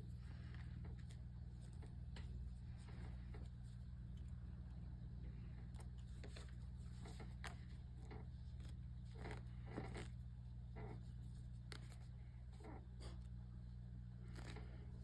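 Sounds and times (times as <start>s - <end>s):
low electrical hum: 0.0s - 15.0s
yarn rustling and clicking: 5.4s - 13.2s, 14.2s - 15.0s.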